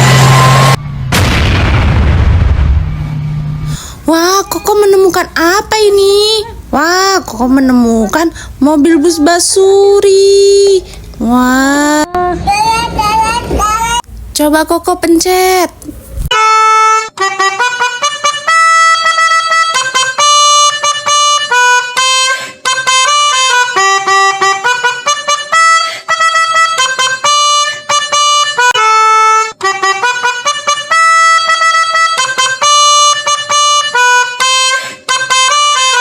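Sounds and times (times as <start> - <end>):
toy horn melody: 16.3 - 36.0.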